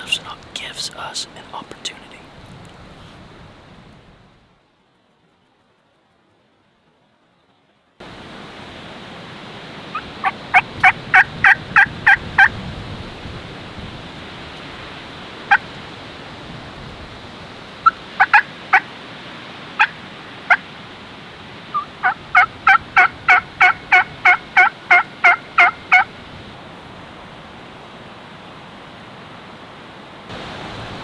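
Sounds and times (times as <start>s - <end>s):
turkey clucks: 9.9s - 12.5s, 17.8s - 18.9s, 19.8s - 20.6s, 21.7s - 26.1s
turkey yelping: 9.9s - 12.5s, 17.8s - 18.9s, 19.8s - 20.6s, 21.7s - 26.1s.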